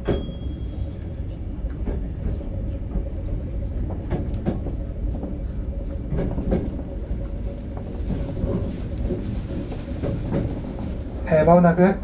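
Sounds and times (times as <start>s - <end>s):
train running rumble: 0.0s - 12.0s
wheels clacking over rail joints: 6.1s - 11.7s.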